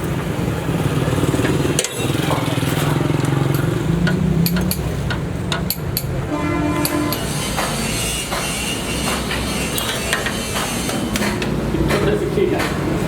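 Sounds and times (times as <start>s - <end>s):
sharp clicks and taps: 3.2s - 6.2s.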